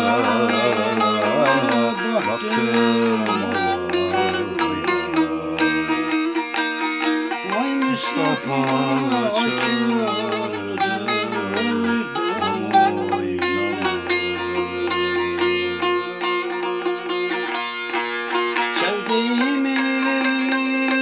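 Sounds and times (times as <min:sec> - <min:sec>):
long-necked lute folk tune: 0:00.0 - 0:21.0.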